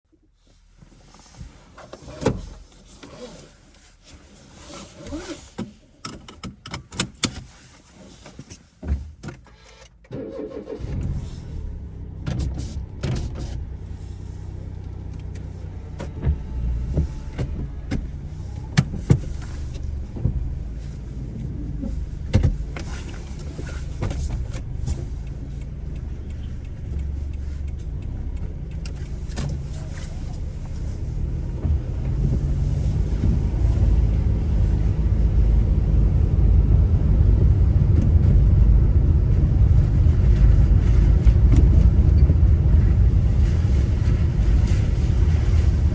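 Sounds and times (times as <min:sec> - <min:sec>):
car engine starting and running: 0:00.4 - 0:45.9
clicks and knocks in car: 0:05.2 - 0:09.6, 0:15.1 - 0:30.9.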